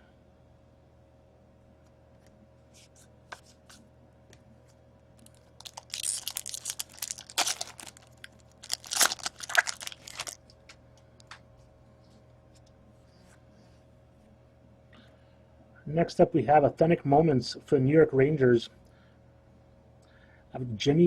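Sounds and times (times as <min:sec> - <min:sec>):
wrapper tearing and crinkling: 0:05.2 - 0:10.5.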